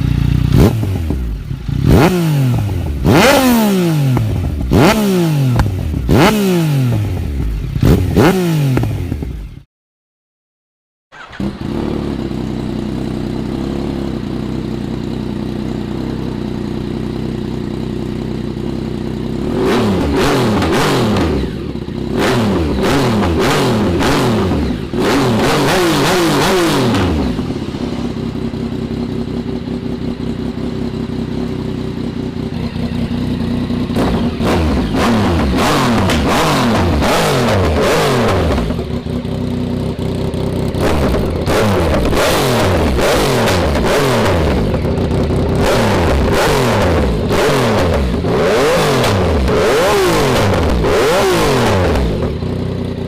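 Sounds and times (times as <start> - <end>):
motorcycle engine idling: 0.0 - 9.6, 11.1 - 48.7, 49.3 - 53.0.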